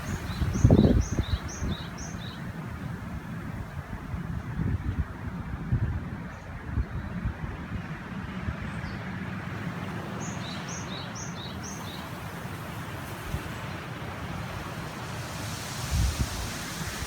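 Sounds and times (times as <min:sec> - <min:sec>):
songbird chirping: 0:00.0 - 0:02.6, 0:09.8 - 0:17.0
mountain river rushing: 0:00.0 - 0:03.0, 0:09.5 - 0:17.0
wind buffeting microphone: 0:00.0 - 0:08.6, 0:11.6 - 0:17.0.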